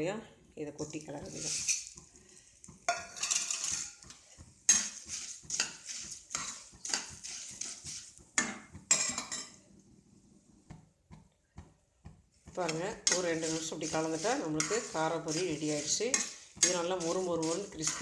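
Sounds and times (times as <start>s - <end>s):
spoon scraping a pan: 0.8s - 9.7s, 12.5s - 18.0s.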